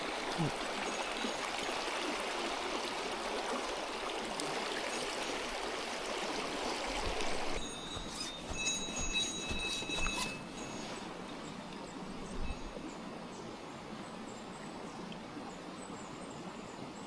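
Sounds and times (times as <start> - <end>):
stream rushing: 0.0 - 14.5
soft water sound: 0.0 - 17.0
thin high tones: 7.6 - 11.1.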